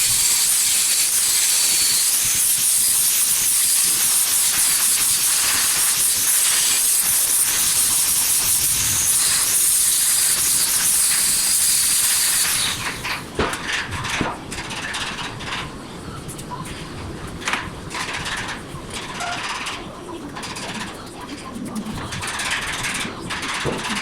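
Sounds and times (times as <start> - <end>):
welding arc crackling: 0.0 - 13.2.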